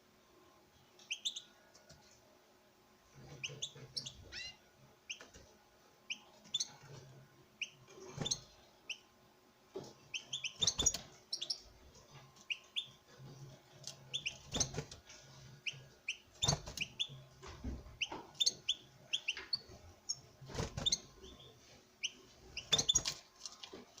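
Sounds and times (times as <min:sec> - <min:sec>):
finches chirping: 0:01.0 - 0:01.5, 0:03.3 - 0:05.4, 0:06.1 - 0:06.8, 0:07.6 - 0:09.0, 0:10.1 - 0:11.7, 0:12.4 - 0:13.0, 0:13.9 - 0:14.8, 0:15.6 - 0:17.2, 0:18.0 - 0:23.2.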